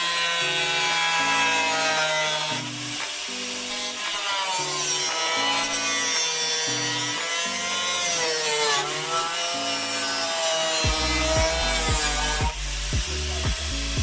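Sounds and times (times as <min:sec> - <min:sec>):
power tool cutting metal: 0:00.0 - 0:14.0
background music with bassline: 0:10.8 - 0:14.0.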